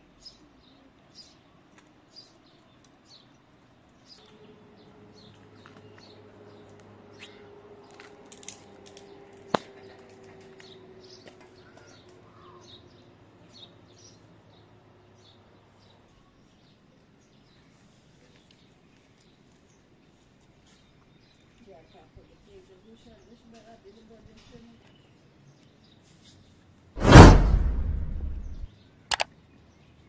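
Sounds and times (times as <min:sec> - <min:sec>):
small birds chirping: 0:00.0 - 0:08.0, 0:10.5 - 0:19.9, 0:20.6 - 0:26.4
sharp click: 0:27.0 - 0:29.3.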